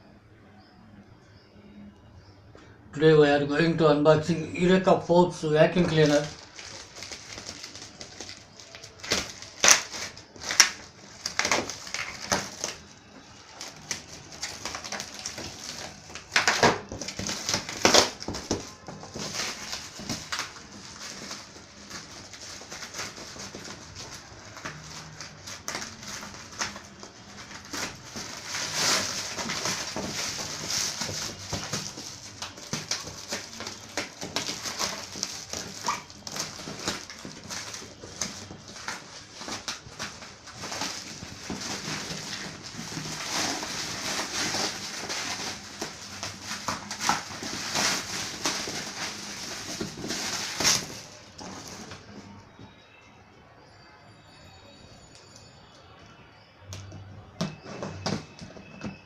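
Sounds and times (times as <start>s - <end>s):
cardboard and plastic packaging handled: 4.7s - 53.0s, 56.7s - 59.0s
sharp crackles and knocks: 13.6s - 52.3s.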